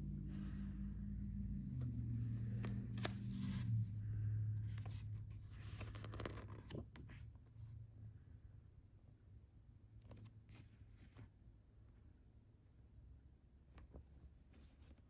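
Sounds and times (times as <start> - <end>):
low steady hum: 0.0 - 15.0
paper rustling: 1.7 - 3.8, 4.7 - 7.3.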